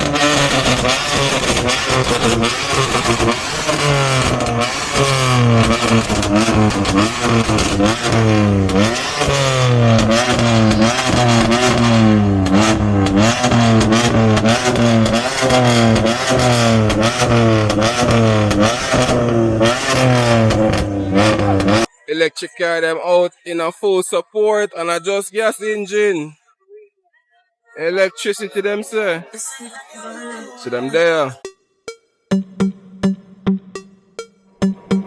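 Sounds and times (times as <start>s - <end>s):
car engine revving: 0.0s - 21.9s
exhaust crackles: 0.0s - 21.9s.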